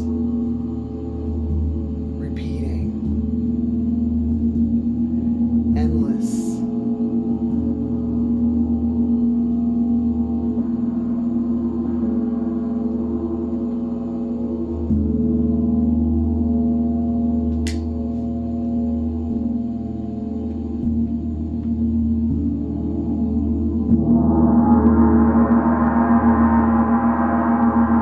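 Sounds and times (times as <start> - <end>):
sharp click: 17.6 - 17.9
gong ringing: 23.1 - 28.0.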